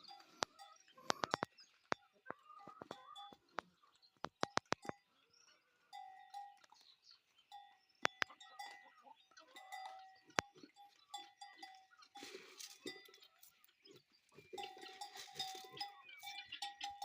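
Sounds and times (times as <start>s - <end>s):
livestock bells clanking: 0.0s - 17.0s
sharp clicks: 2.8s - 5.0s.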